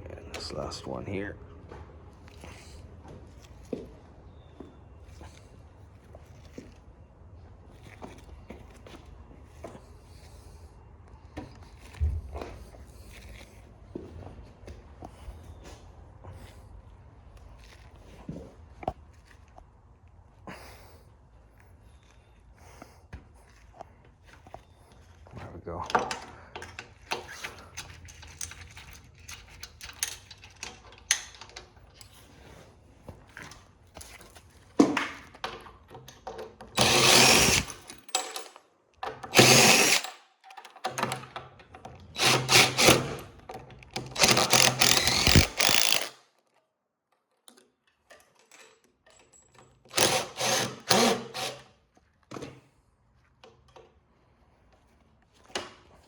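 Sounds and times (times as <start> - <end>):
metal parts clicking: 25.9 - 32.2, 35.5 - 46.2
power drill running: 36.8 - 38.2, 39.3 - 40.2, 42.1 - 43.4, 44.0 - 46.1, 49.9 - 51.6.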